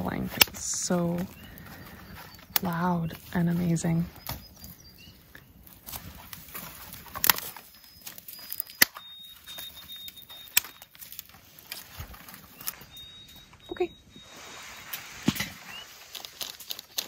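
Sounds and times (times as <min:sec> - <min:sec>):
songbird whistling: 0:01.2 - 0:03.4, 0:04.1 - 0:05.6, 0:07.4 - 0:11.1, 0:12.3 - 0:16.1.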